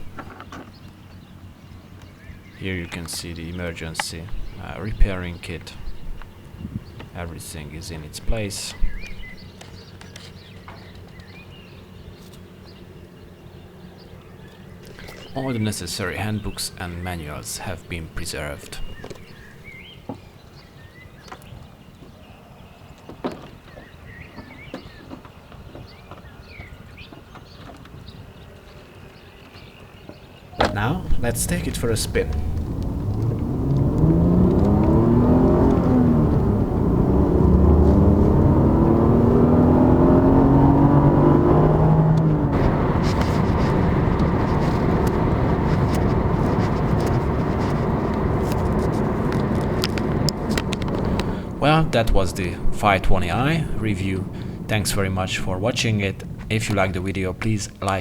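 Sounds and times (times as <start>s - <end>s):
car engine and road noise: 0.0s - 22.4s, 30.6s - 58.0s
small birds chirping: 0.0s - 58.0s.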